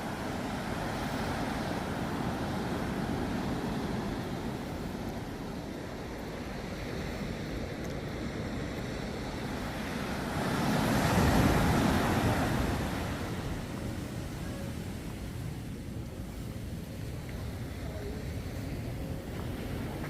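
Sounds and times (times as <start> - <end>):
waves breaking on beach: 0.0 - 20.0.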